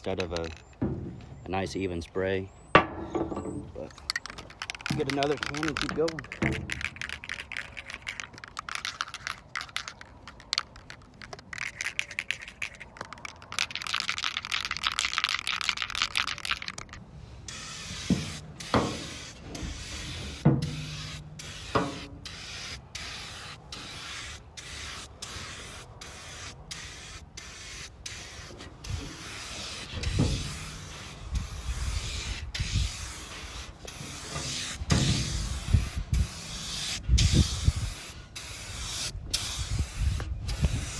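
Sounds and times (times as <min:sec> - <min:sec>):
knocks and handling noises: 0:00.1 - 0:01.4, 0:02.8 - 0:12.1
aerosol spray paint hissing: 0:04.3 - 0:09.9, 0:17.5 - 0:40.9.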